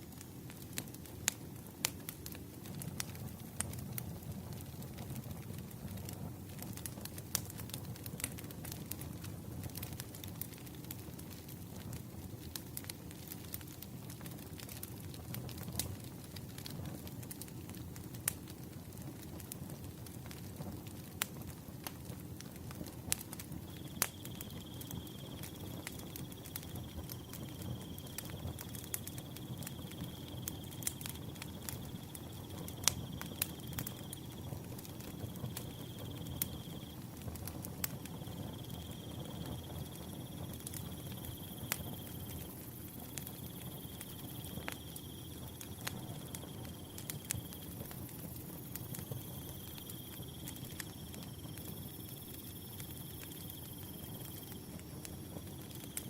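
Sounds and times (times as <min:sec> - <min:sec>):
wood fire crackling and popping: 0:00.0 - 0:56.0
cricket chirping: 0:23.7 - 0:37.0, 0:37.8 - 0:56.0.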